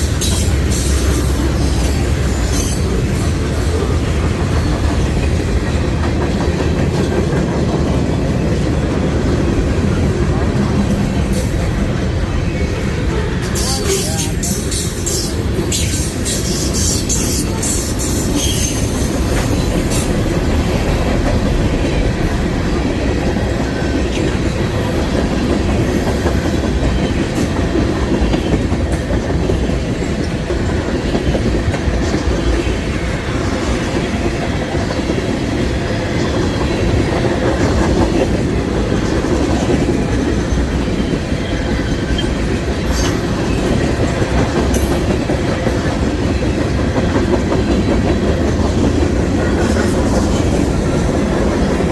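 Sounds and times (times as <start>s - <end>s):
freight train rumbling past: 0.0s - 51.9s.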